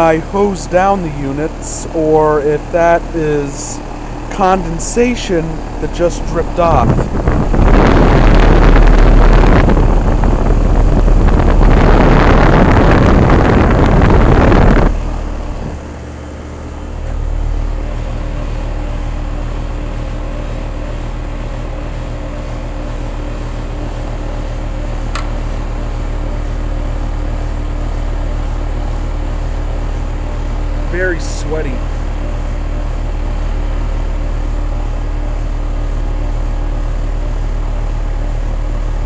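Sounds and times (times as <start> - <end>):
compressor and fan hum: 0.0 - 39.0
air rushing on microphone: 3.1 - 15.9.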